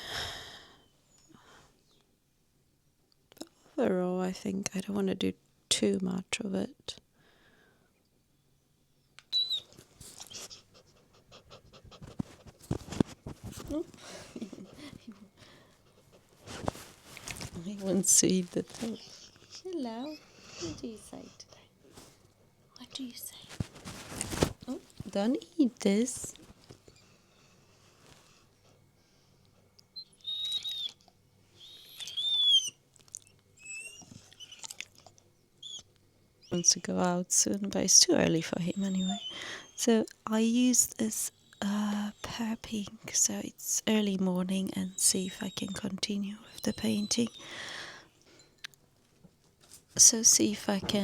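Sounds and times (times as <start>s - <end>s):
pet bird whistled calls: 9.3s - 9.7s, 30.0s - 31.0s, 31.6s - 32.8s
dog panting: 10.0s - 21.6s, 38.7s - 39.8s.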